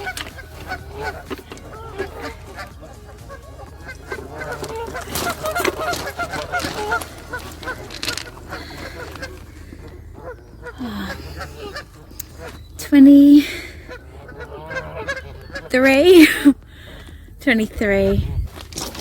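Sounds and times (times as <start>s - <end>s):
geese honking: 0.0s - 19.0s
sharp clicks: 11.7s - 12.9s.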